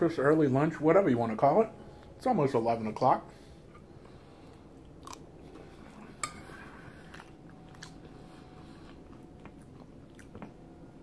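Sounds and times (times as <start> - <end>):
quiet chewing: 3.7 - 10.7.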